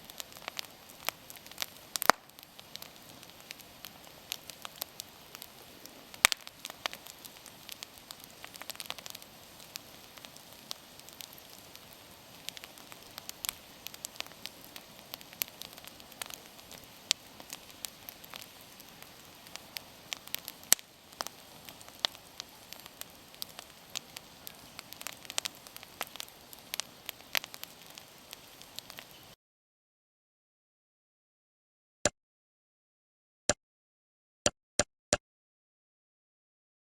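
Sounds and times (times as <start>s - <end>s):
bonfire crackling and popping: 0.0s - 29.4s
faint steady hiss: 0.0s - 29.4s.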